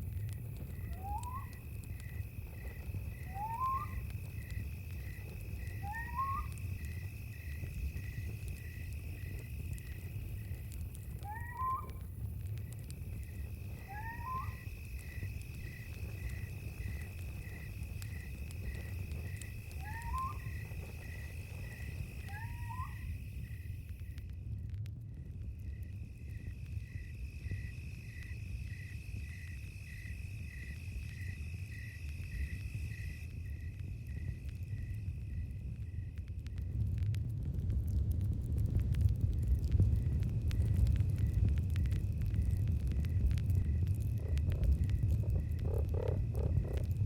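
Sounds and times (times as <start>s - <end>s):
insect chirping: 0.0s - 24.1s, 25.6s - 36.3s, 40.0s - 47.0s
campfire rumble and crackle: 0.0s - 47.0s
insect high drone: 0.6s - 12.0s, 12.6s - 24.0s, 25.7s - 36.2s, 43.1s - 47.0s.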